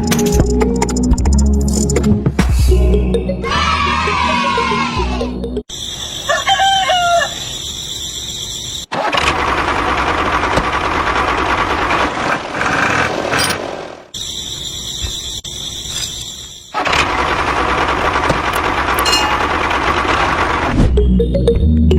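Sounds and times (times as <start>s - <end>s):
rooster crowing: 6.2s - 7.5s.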